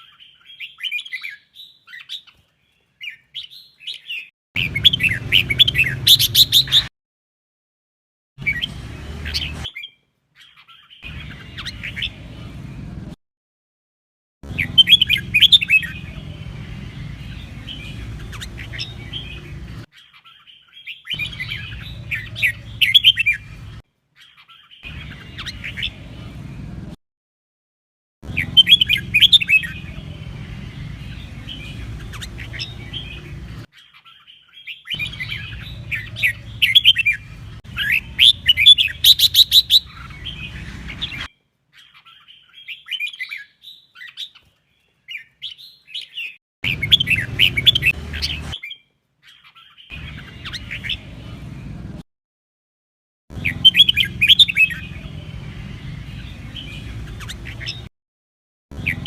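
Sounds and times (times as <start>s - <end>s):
bulbul singing chattering whistles: 3.1s - 6.9s, 14.5s - 16.2s, 28.3s - 30.0s, 31.0s - 44.4s, 53.4s - 55.0s.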